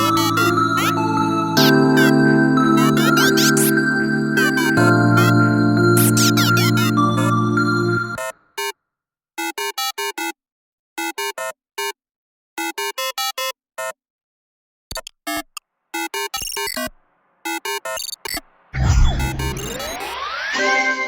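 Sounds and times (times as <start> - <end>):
glitchy synthesizer notes: 0.0 - 8.2, 18.8 - 21.0.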